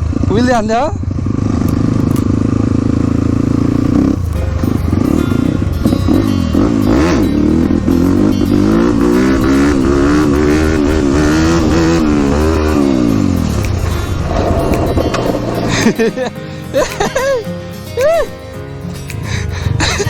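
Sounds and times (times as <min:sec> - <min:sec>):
dirt bike engine revving: 0:01.1 - 0:16.4.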